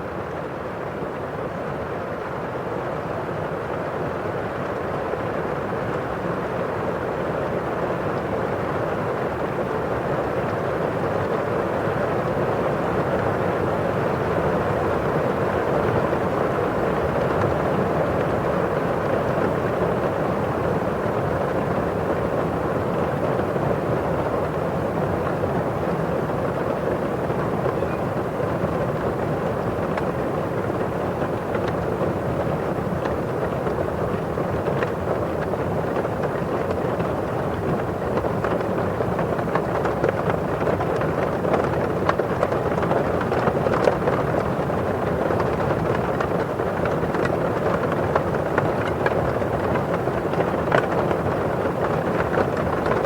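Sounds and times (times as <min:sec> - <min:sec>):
steady rain falling: 0:00.0 - 0:53.0
raindrops tapping on window glass: 0:26.6 - 0:53.0.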